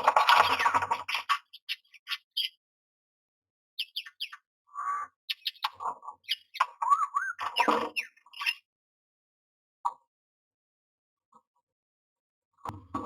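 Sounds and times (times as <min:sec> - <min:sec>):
bird chirping and squawking: 0:00.0 - 0:02.6, 0:03.8 - 0:08.7
wavering bird whistle: 0:03.8 - 0:08.6.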